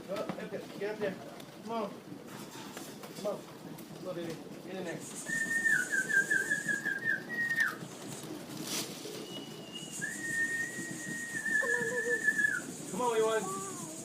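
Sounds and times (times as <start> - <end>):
person whistling high call: 5.3 - 7.8, 9.3 - 12.7.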